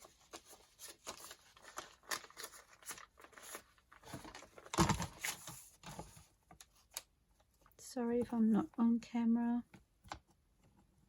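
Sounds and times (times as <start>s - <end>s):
paper rustling: 0.0s - 7.6s.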